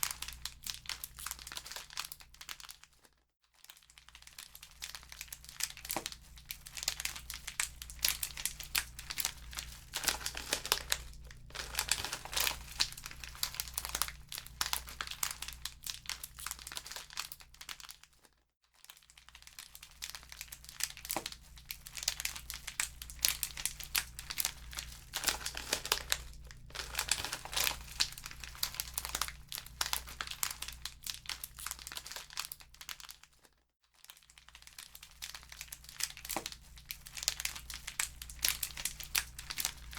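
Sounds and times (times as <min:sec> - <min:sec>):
wood fire crackling and popping: 0:06.8 - 0:15.7, 0:21.0 - 0:32.0.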